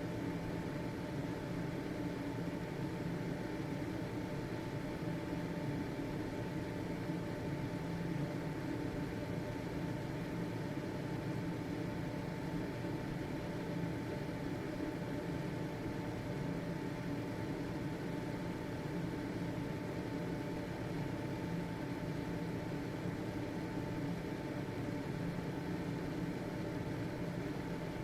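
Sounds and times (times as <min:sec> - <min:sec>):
ventilation fan running: 0:00.0 - 0:28.0.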